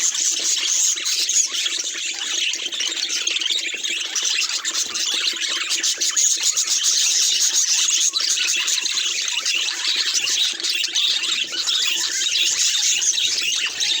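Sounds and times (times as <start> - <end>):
budgerigars chattering and chirping: 0.0 - 14.0.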